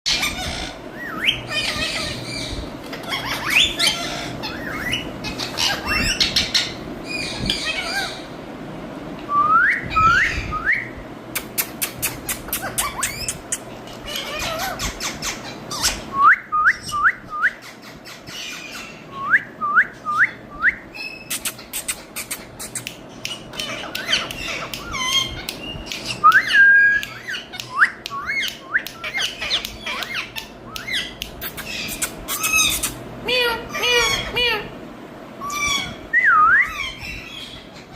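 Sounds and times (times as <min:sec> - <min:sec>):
parakeet squawks and whistles: 0:00.1 - 0:08.2, 0:11.5 - 0:16.1, 0:20.9 - 0:34.7, 0:35.4 - 0:37.9.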